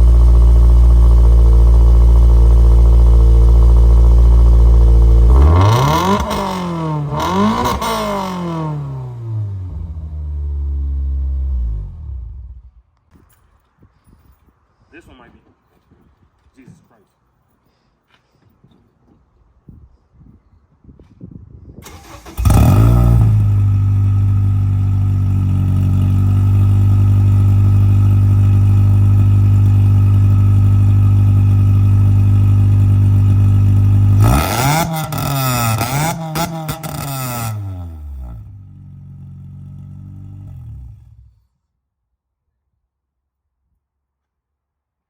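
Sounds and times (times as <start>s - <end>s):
car engine starting and revving: 0.0s - 12.7s, 21.8s - 41.3s.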